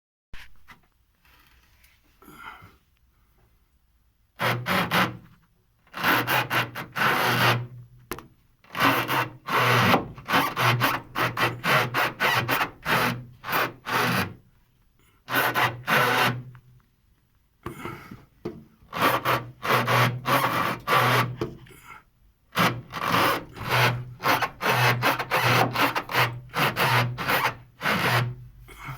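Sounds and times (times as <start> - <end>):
rubber bushings creaking: 22.6 - 28.4.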